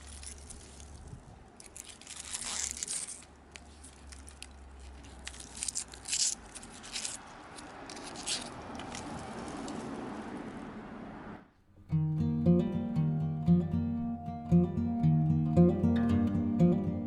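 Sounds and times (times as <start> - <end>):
rustling and scraping in soil: 0.0 - 10.2.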